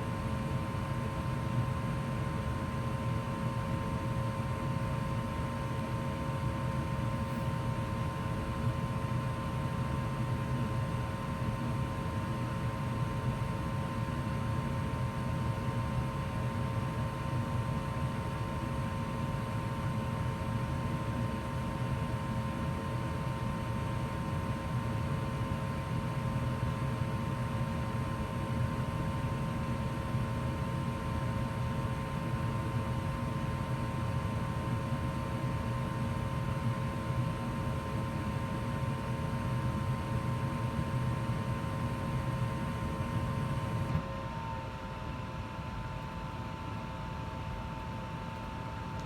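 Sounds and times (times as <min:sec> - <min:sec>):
gas furnace running: 0:30.6 - 0:44.6.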